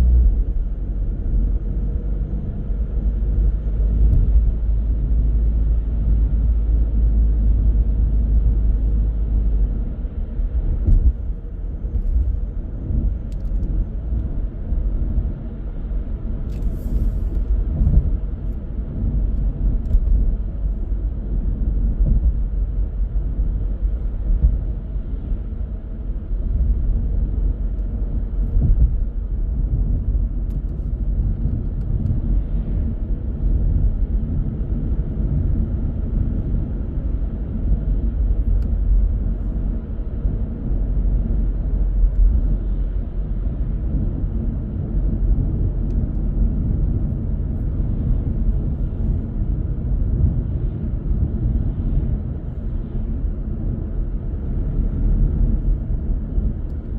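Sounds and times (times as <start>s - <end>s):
car road and engine rumble: 0.0s - 56.9s.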